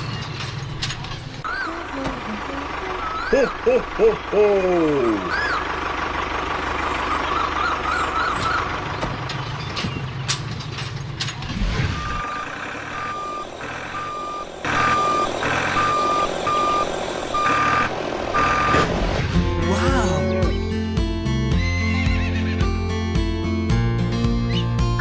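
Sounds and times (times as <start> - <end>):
vehicle engine rumbling: 0.0 - 25.0
reversing alarm beeps: 11.9 - 18.8.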